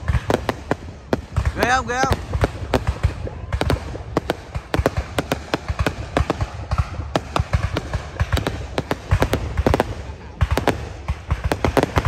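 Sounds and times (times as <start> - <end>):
fireworks bangs and crackling pops: 0.0 - 12.0.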